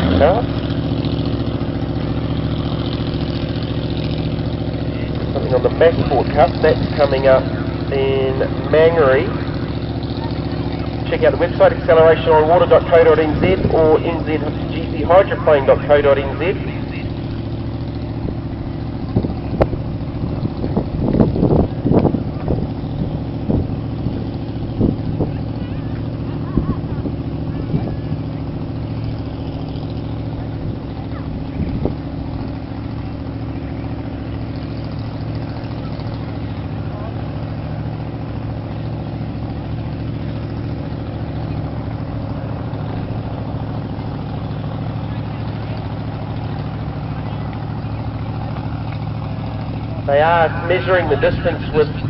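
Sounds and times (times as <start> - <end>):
engine drone: 0.0 - 52.0
wind on microphone: 19.1 - 25.4.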